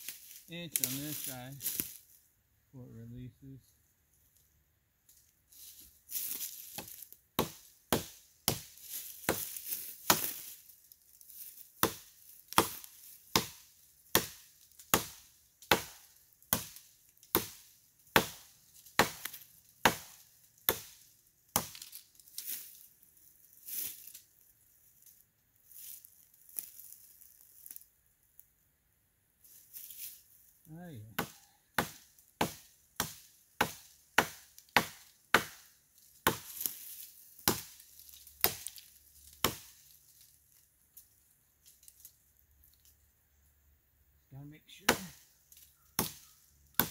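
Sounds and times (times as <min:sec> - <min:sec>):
axe chopping wood: 0:06.8 - 0:10.4, 0:11.8 - 0:21.9, 0:31.1 - 0:36.7, 0:37.4 - 0:37.8, 0:38.4 - 0:38.8, 0:39.4 - 0:39.8, 0:44.8 - 0:45.2, 0:46.0 - 0:46.9.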